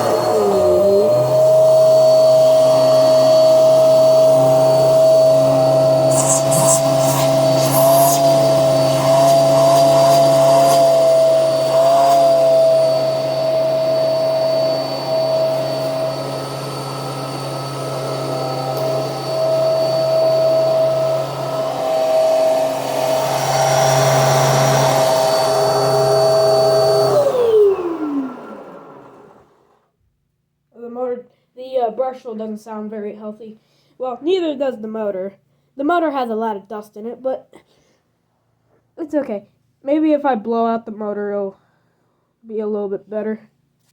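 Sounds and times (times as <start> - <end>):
motor winding down: 0.0 - 29.7
vacuum cleaner whining: 0.0 - 29.8
person talking: 5.9 - 8.3, 30.8 - 37.6, 39.0 - 41.6, 42.4 - 43.5.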